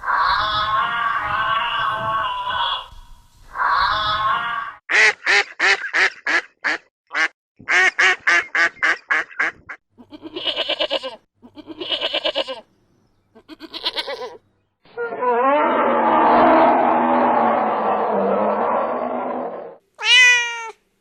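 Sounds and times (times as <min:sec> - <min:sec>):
wavering bleat-like calls: 0:00.1 - 0:03.0, 0:03.7 - 0:04.8, 0:10.0 - 0:12.7, 0:13.4 - 0:16.5
duck quacking: 0:04.9 - 0:09.8.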